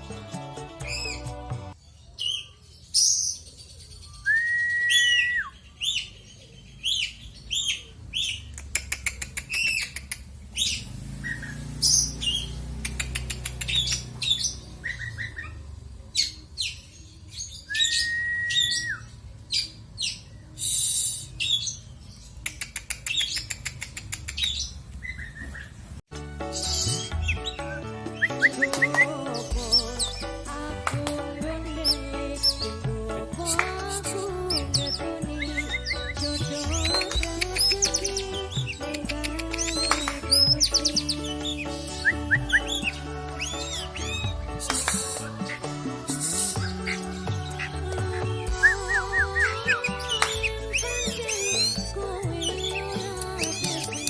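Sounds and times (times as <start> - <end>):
background music: 0.0 - 1.8, 26.1 - 54.0
songbird singing whistles and trills: 0.8 - 1.4, 2.2 - 6.2, 9.4 - 15.6, 16.2 - 25.5, 26.5 - 30.3, 31.7 - 32.8, 33.5 - 54.0.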